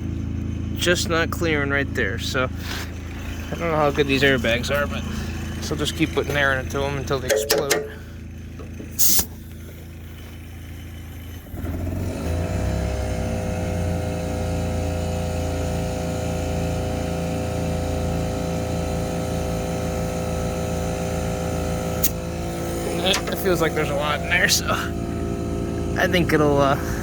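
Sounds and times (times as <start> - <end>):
motor running: 0.0 - 27.0
short hiss of air: 9.0 - 9.4.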